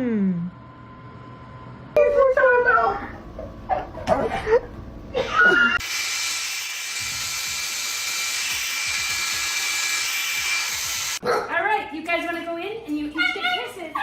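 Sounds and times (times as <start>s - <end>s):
small motor whirring: 5.8s - 11.2s.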